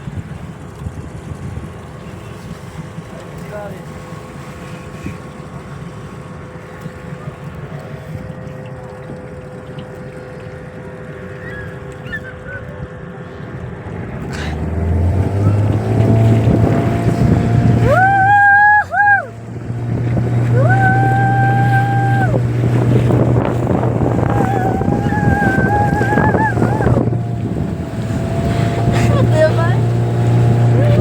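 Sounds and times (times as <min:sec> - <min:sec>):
outboard engine running: 0:00.0 - 0:31.0
water noise: 0:00.0 - 0:31.0
wind noise: 0:15.0 - 0:31.0.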